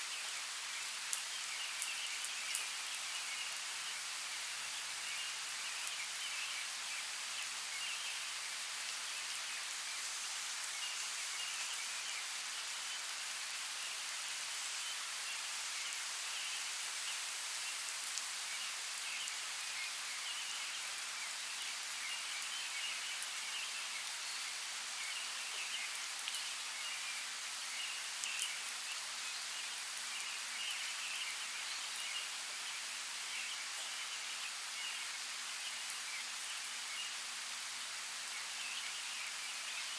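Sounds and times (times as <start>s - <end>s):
steady rain hiss: 0.0s - 39.9s
rain drops ticking: 0.7s - 3.9s, 25.0s - 26.6s, 27.2s - 32.8s.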